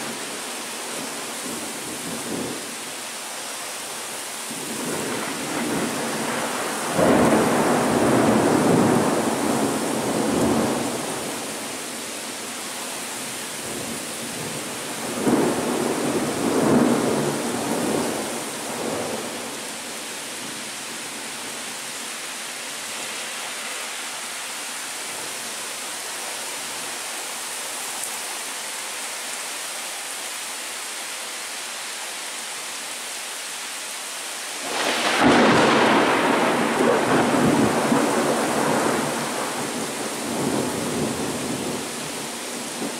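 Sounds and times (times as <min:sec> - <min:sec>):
steady rain hissing: 0:00.0 - 0:42.9
thunder rumbling: 0:13.6 - 0:19.5, 0:34.6 - 0:41.9.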